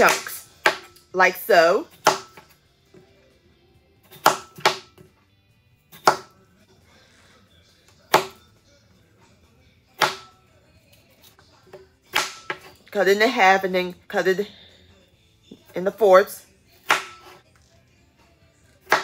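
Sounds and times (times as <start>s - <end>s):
knife chopping on wooden board: 0.0s - 1.0s, 2.0s - 2.5s, 4.1s - 5.0s, 6.0s - 6.3s, 10.0s - 10.3s, 12.1s - 12.7s, 16.8s - 17.4s.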